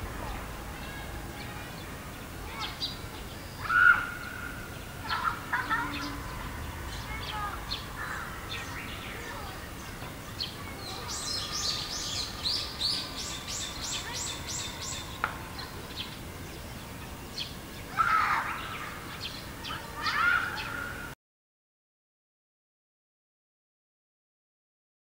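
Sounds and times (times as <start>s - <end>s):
songbirds chirping: 0.0s - 21.2s
louder lower bird call: 3.6s - 6.4s.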